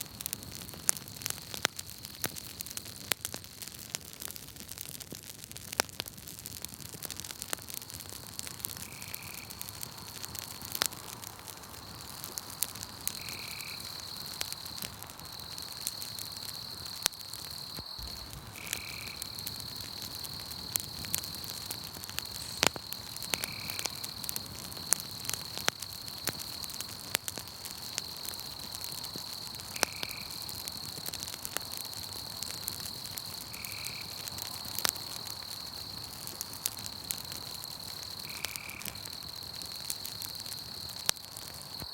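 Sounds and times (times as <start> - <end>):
campfire crackling and popping: 0.0 - 41.9
insect trill: 8.5 - 10.9, 11.6 - 41.9.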